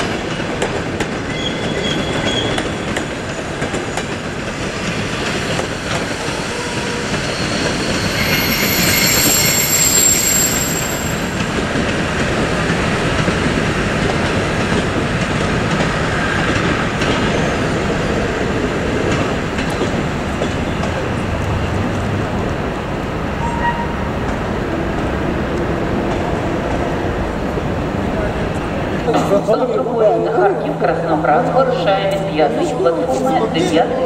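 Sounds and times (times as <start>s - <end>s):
train moving on rails: 0.0s - 34.0s
high-pitched wheel squeal: 5.9s - 11.6s, 23.4s - 24.0s.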